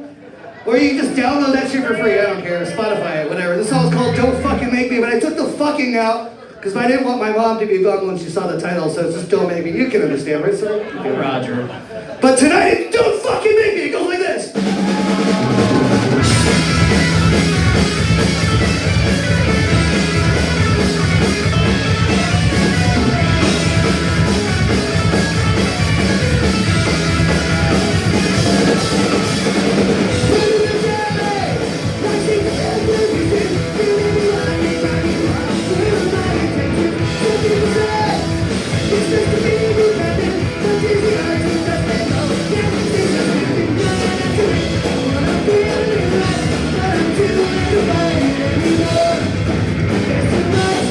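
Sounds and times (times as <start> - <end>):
person singing: 3.6 - 5.1, 30.0 - 50.9
electric guitars: 3.6 - 5.5, 14.6 - 50.9
bass guitar: 3.6 - 5.6, 14.6 - 50.9
drum kit: 3.6 - 5.6, 14.6 - 50.9.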